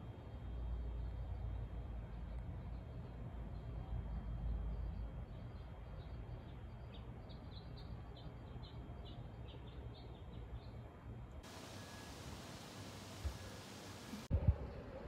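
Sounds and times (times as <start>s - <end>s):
low rumble of wind: 0.0s - 15.0s
steady hiss: 11.4s - 14.3s.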